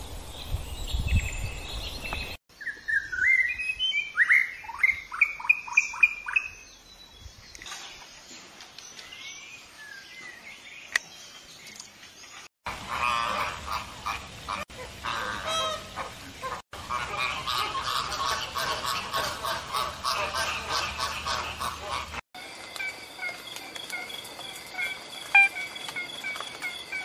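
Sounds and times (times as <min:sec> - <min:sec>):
birds honking: 0:12.7 - 0:22.2, 0:24.6 - 0:27.0
bird high notes: 0:22.8 - 0:27.0.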